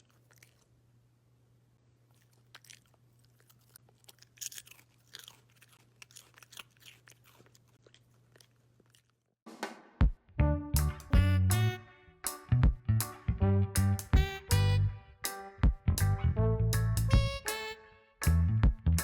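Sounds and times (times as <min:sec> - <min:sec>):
dog chewing crunchy food: 0:00.0 - 0:00.8, 0:02.0 - 0:09.4
faint steady hum: 0:00.0 - 0:05.0.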